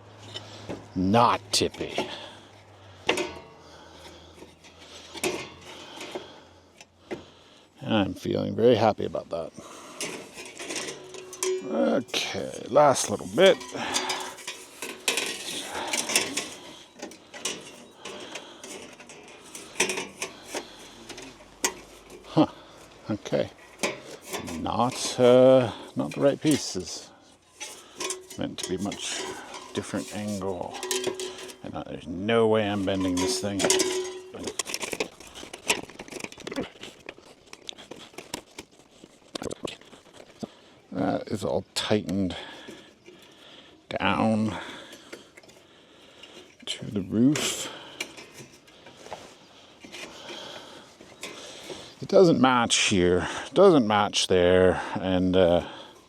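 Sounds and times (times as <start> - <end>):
sheet metal scraping: 9.6 - 22.4, 23.2 - 36.5.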